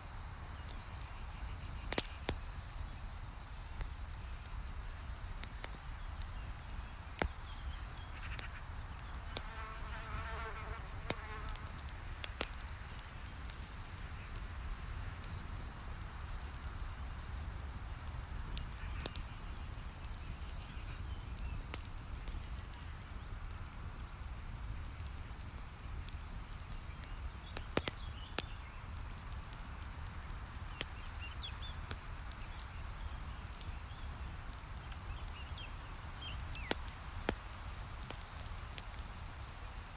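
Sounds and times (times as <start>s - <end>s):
campfire crackling and popping: 0.1s - 39.9s
fly buzzing: 9.3s - 11.7s.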